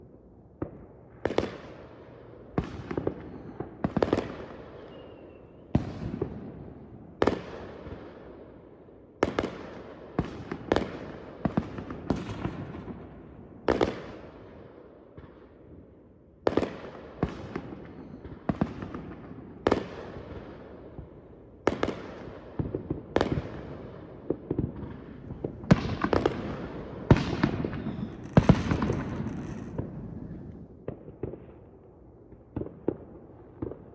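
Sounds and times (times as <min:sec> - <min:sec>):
rumble and crackle of fireworks: 0:00.0 - 0:33.9
fireworks bangs: 0:21.7 - 0:31.7.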